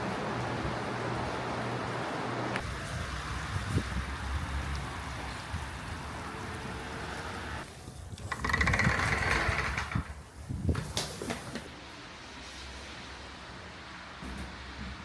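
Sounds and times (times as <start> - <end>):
railcar engine drone: 0.0 - 7.7
rattling hiss: 8.2 - 11.7.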